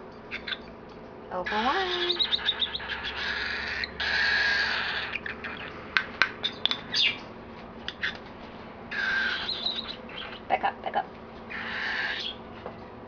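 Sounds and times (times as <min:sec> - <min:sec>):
bird chirps and clicks: 0:00.3 - 0:01.1, 0:01.9 - 0:03.2, 0:05.0 - 0:07.3, 0:07.9 - 0:08.3, 0:09.3 - 0:10.5
cockatiel raspy begging calls: 0:01.4 - 0:05.7, 0:08.9 - 0:10.5, 0:11.5 - 0:12.4.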